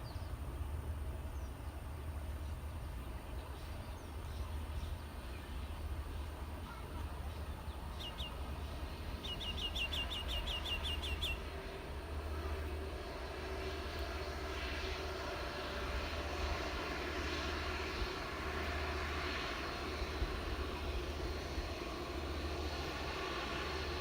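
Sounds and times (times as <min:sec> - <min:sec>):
jet engine of landing plane: 0:00.0 - 0:24.0
bird chirping: 0:07.9 - 0:08.4, 0:09.2 - 0:11.4.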